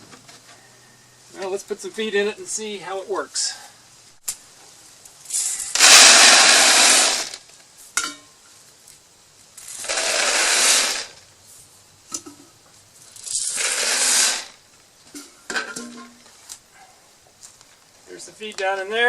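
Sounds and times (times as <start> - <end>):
feed pellets pouring: 5.3 - 7.4, 9.6 - 11.2, 13.2 - 14.6.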